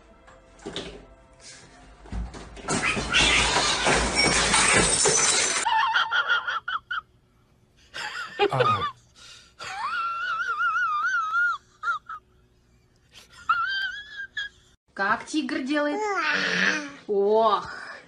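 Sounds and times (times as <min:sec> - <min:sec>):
items crashing off a desk: 0:02.1 - 0:05.7.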